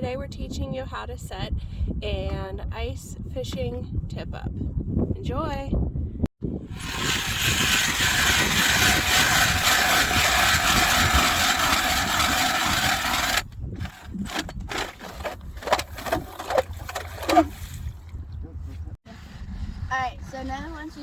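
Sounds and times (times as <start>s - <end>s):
ice auger drilling: 6.6s - 17.8s
knocks and clatter: 6.8s - 17.8s.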